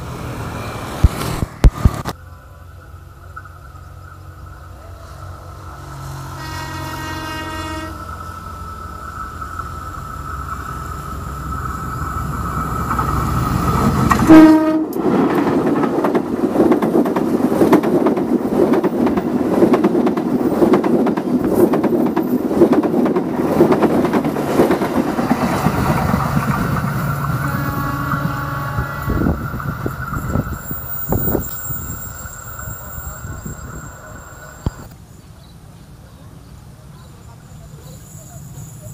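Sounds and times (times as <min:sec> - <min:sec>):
train horn: 0:04.9 - 0:08.2, 0:14.2 - 0:15.0, 0:27.3 - 0:29.4
train wheels clattering over rail joints: 0:15.0 - 0:28.3.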